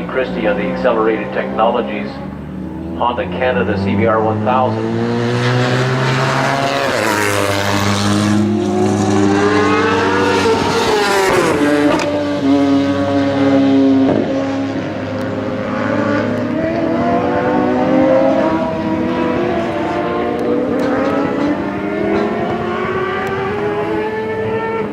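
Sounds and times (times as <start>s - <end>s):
racing motorcycle engines: 0.0s - 24.9s.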